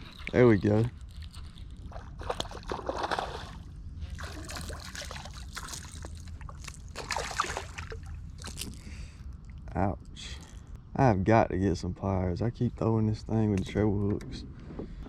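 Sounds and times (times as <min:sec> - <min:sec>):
water splashing and trickling: 0:00.0 - 0:09.6.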